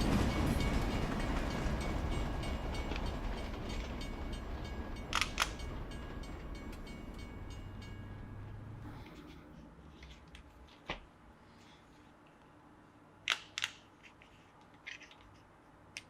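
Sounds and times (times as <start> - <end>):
model train running on track: 0.0 - 9.3
sharp clicks: 5.1 - 5.6.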